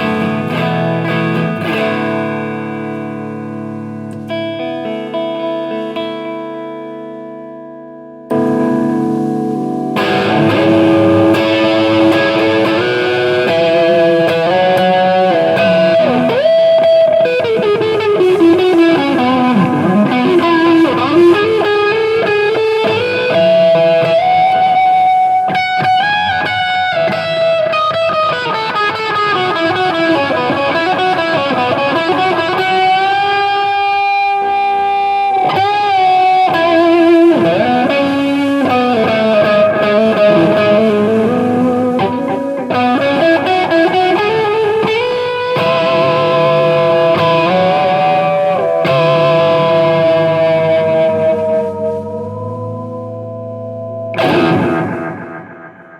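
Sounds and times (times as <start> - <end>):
electric guitar lead with bends: 0.0 - 55.9.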